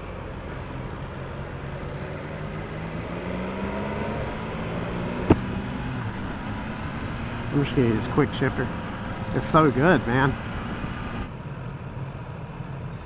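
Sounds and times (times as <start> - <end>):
motorcycle engine accelerating: 0.0 - 12.8.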